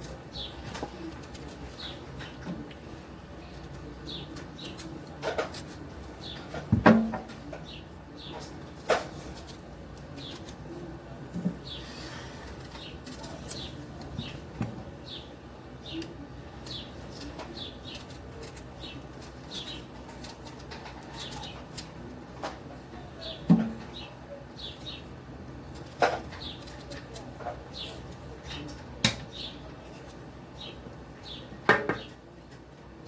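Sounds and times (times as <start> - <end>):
potato peeling scrapes: 0.0 - 6.7, 8.2 - 15.2, 16.0 - 22.6, 25.6 - 30.9.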